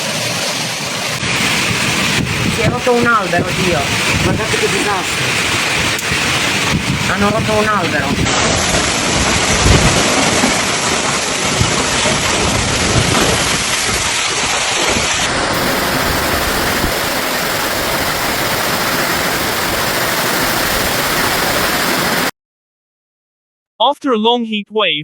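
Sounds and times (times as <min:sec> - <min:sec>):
heavy rain pouring: 0:00.0 - 0:22.3
low gusty thuds: 0:01.3 - 0:14.2.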